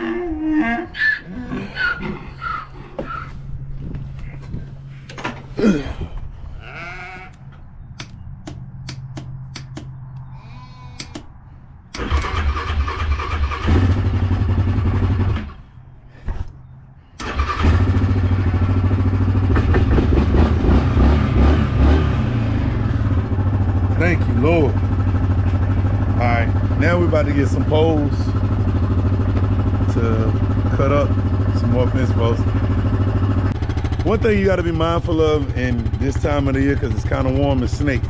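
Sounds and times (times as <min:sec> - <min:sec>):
sharp clicks: 0:07.9 - 0:10.3, 0:11.0 - 0:11.3
atv engine starting and running: 0:11.9 - 0:38.0.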